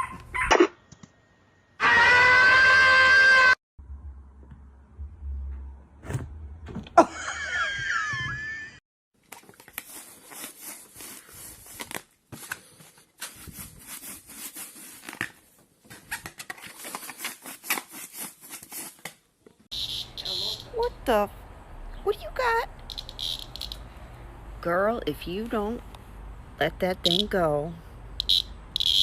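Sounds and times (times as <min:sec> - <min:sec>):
low hum: 0:03.8 - 0:06.9.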